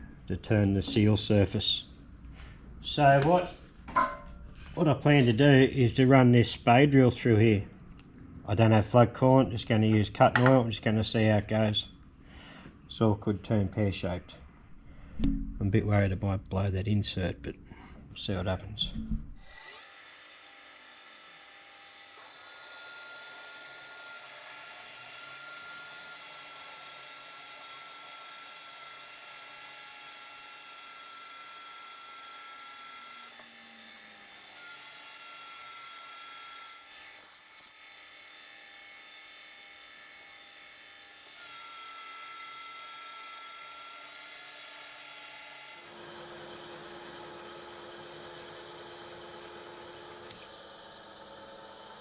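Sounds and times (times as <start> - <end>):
drill machine running: 19.4 - 46.6
high squeal of drill cutting steel: 32.2 - 37.8.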